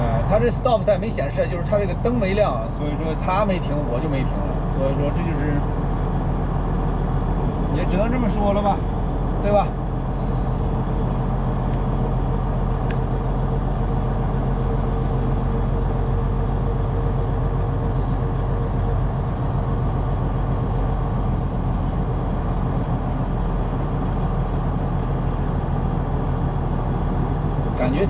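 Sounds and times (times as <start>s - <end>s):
diesel truck engine humming: 0.0s - 28.0s.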